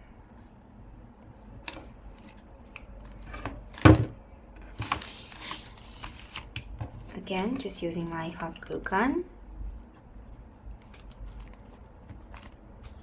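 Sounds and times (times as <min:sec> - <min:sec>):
paper taps and rustles: 0:10.7 - 0:13.0.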